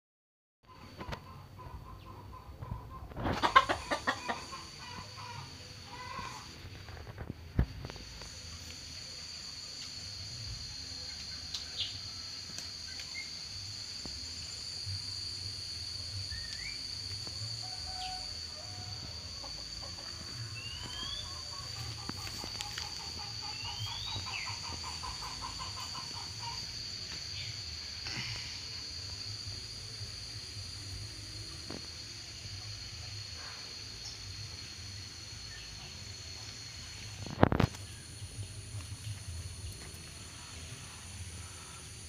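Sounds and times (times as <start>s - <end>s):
steady high-pitched whine: 0.7s - 42.0s
birds chirping: 20.5s - 28.3s.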